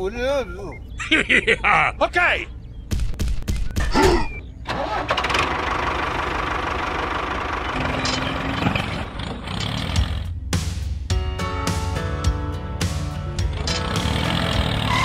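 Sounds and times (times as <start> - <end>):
tractor engine running: 2.6 - 10.7, 13.3 - 15.0.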